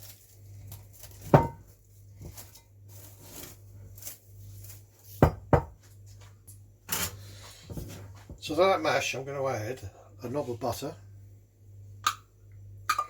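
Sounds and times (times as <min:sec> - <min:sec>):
steady low hum: 0:00.0 - 0:13.0
kitchenware knocking on counter: 0:01.3 - 0:01.6, 0:05.2 - 0:05.8.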